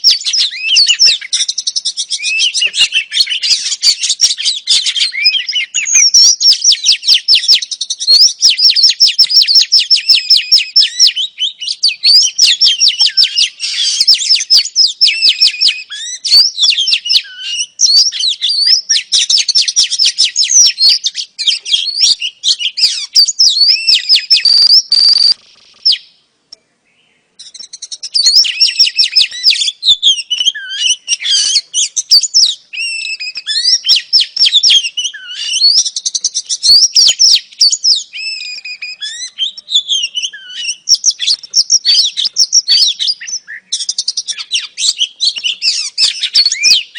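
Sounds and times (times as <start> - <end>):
bird chirping and whistling: 0.0 - 26.2, 27.4 - 46.9.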